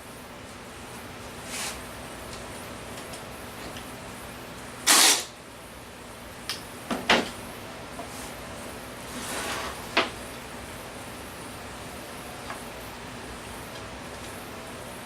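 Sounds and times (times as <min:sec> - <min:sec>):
plastic bin sliding scrape: 0:09.1 - 0:09.9.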